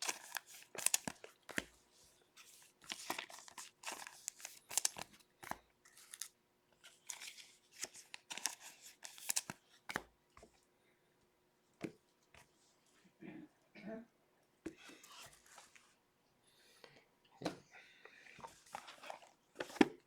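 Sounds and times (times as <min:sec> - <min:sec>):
cards being handled: 0:00.0 - 0:10.5, 0:18.4 - 0:20.0.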